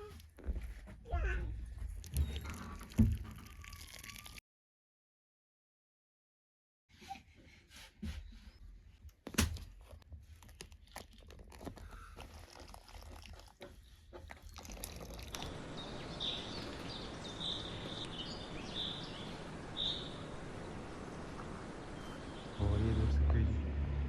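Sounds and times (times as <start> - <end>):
steady outdoor hiss: 15.3 - 24.0
high bird chirps: 15.4 - 22.6.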